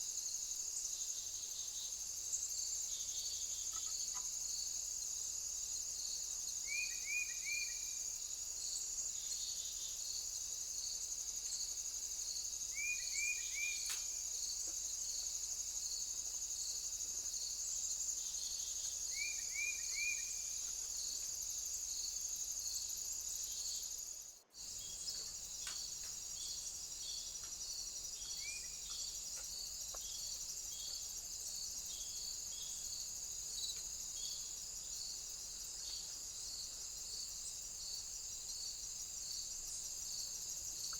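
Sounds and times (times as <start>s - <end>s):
insect chorus: 0.0s - 40.9s.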